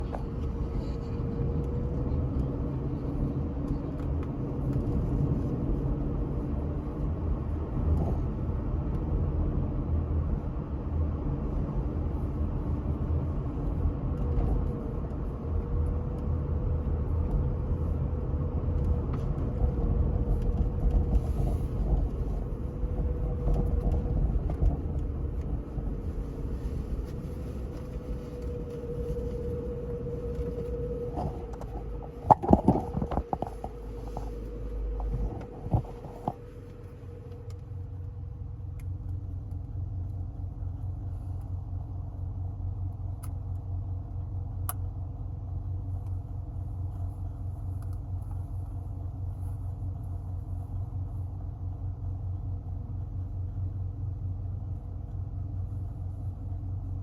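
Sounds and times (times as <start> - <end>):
vehicle engine rumbling: 0.0 - 57.0.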